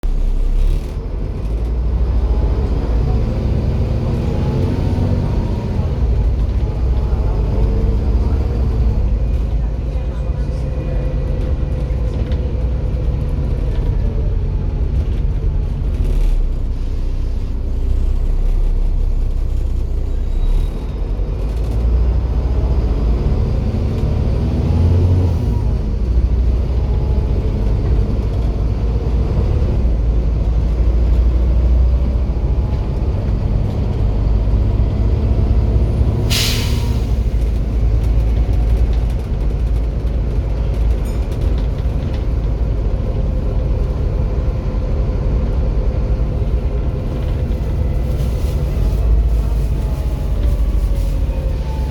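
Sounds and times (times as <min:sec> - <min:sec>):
bus diesel engine running: 0:00.0 - 0:51.9
air brake release: 0:36.2 - 0:37.4.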